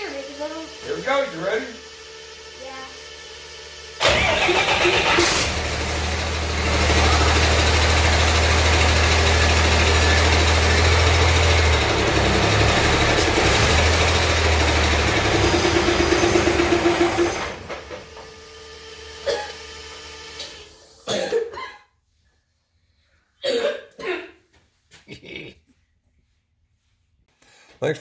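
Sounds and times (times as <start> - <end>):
diesel engine starting and running: 0.0 - 21.0.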